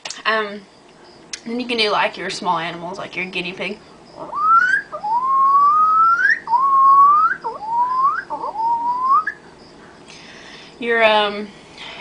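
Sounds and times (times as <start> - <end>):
woman making whistle-like squeals: 4.3 - 9.4.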